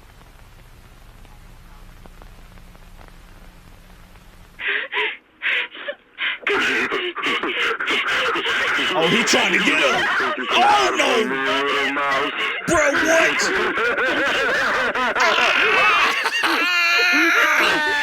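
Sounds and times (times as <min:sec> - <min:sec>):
faint hiss and low hum: 0:00.0 - 0:07.4.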